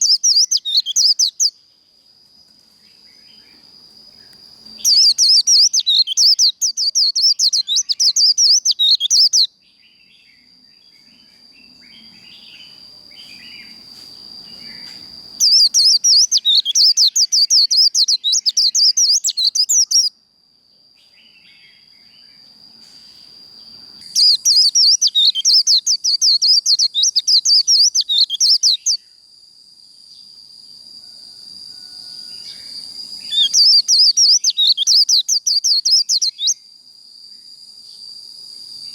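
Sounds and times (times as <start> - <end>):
bird chattering song: 0.0 - 1.6, 4.8 - 10.0, 14.7 - 20.1, 24.1 - 29.0, 33.2 - 36.6.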